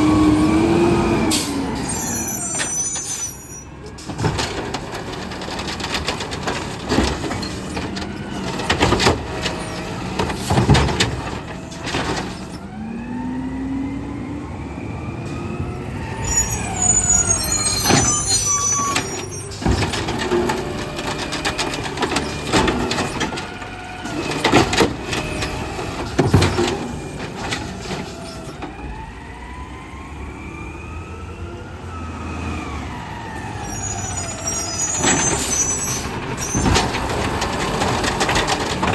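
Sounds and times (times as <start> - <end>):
garbage truck engine whining: 0.0 - 38.9
carts banging and slamming: 1.4 - 12.6, 16.1 - 29.1, 34.4 - 38.9.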